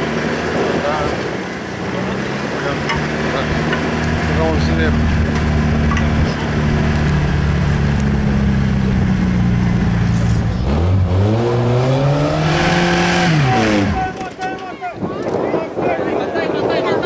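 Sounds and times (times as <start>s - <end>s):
off-road vehicle engine revving: 0.0s - 14.3s.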